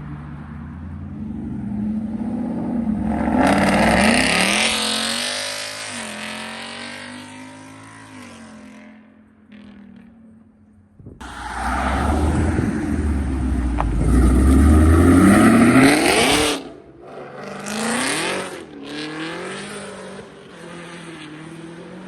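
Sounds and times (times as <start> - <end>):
car engine accelerating: 11.1 - 22.0.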